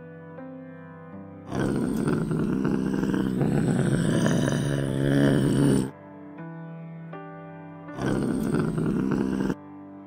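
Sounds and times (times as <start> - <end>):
wild cat growling: 1.5 - 5.9, 8.0 - 9.6.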